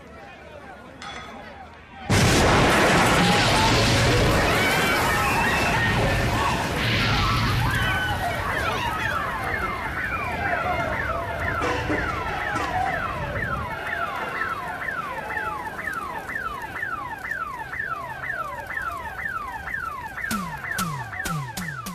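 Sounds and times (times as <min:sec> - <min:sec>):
car alarm sweeping tone: 0:07.1 - 0:21.9
heavy drumbeats of theme music: 0:20.3 - 0:21.9.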